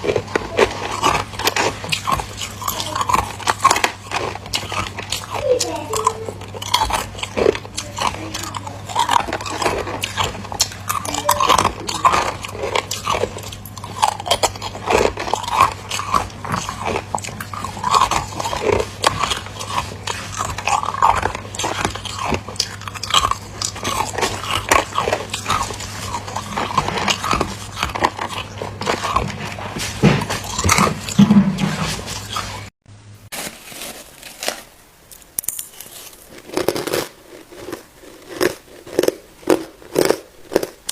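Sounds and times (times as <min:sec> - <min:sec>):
person chewing ice: 0:00.0 - 0:32.8, 0:33.8 - 0:40.9
low electrical hum: 0:00.0 - 0:40.9.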